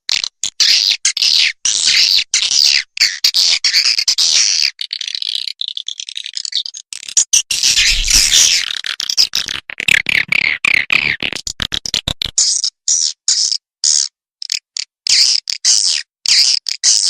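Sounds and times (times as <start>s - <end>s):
swiftlet twittering chirps: 7.6s - 8.6s.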